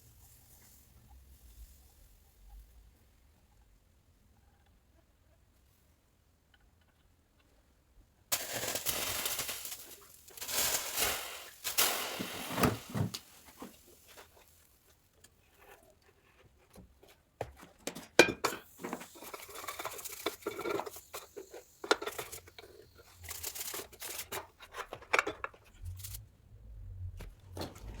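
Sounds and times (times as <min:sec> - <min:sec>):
sand scraping and crumbling: 0:08.3 - 0:14.7.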